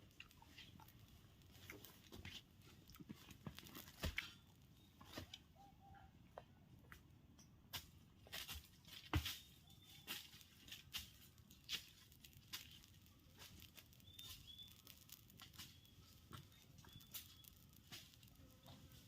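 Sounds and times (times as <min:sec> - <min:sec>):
birds fluttering and scrabbling: 0:00.2 - 0:05.5, 0:08.7 - 0:19.0
faint high bird chirps: 0:04.2 - 0:06.2, 0:09.3 - 0:10.5, 0:13.4 - 0:19.0.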